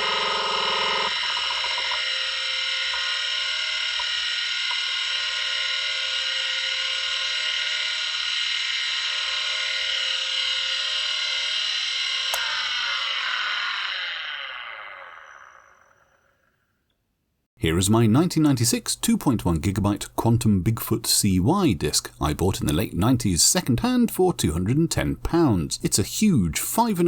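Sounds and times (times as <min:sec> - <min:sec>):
hard drive buzzing: 0:00.0 - 0:16.4
hard drive whine: 0:00.0 - 0:16.8.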